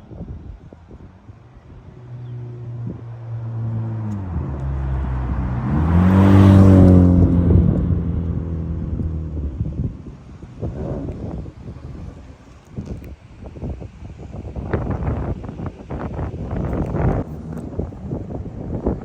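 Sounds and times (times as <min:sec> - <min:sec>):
car driving by: 0:01.5 - 0:11.3.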